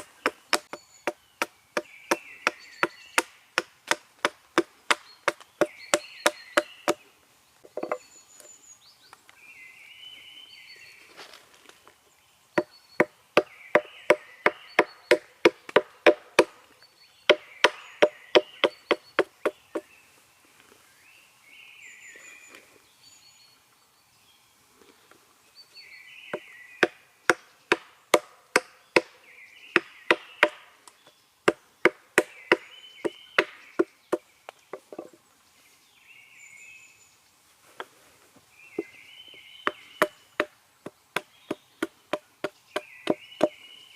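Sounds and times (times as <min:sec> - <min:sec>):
hatchet chopping wood: 0:00.0 - 0:07.0, 0:12.6 - 0:16.6, 0:17.3 - 0:19.8, 0:26.3 - 0:30.7, 0:31.4 - 0:34.2, 0:39.6 - 0:43.6
birds singing: 0:00.0 - 0:43.9.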